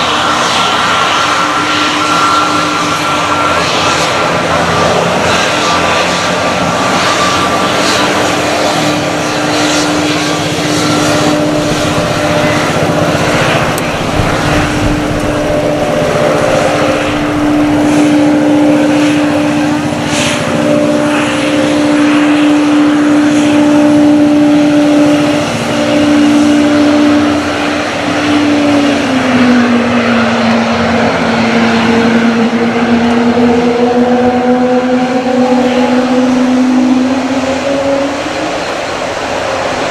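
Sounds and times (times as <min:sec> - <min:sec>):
jet engine whine: 0:00.0 - 0:39.9
steady hum: 0:10.2 - 0:23.8.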